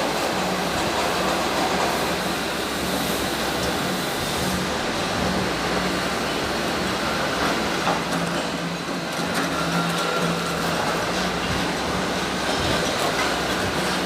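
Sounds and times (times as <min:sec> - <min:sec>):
welding arc crackling and hissing: 0:00.0 - 0:08.4.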